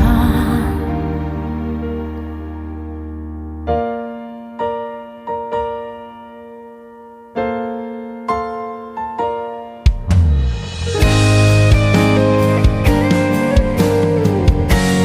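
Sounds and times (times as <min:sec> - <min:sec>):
held keyboard chord: 0:00.0 - 0:15.0
slow piano phrase: 0:00.0 - 0:15.0
band hit: 0:09.9 - 0:14.0.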